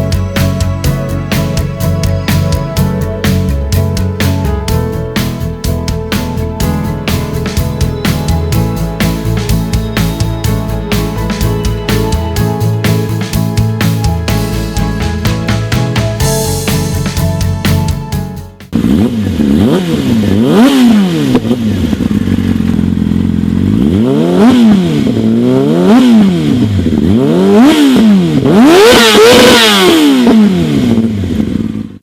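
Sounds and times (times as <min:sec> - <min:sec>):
music: 0:00.0 - 0:18.8
scooter engine revving: 0:00.0 - 0:31.9.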